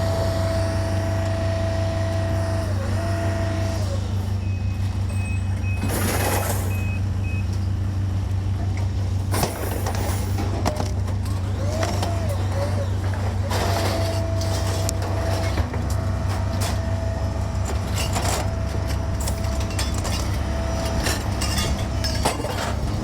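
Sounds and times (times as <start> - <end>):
reversing alarm beeping: 0.0 - 7.7
large diesel engine running: 0.0 - 23.0.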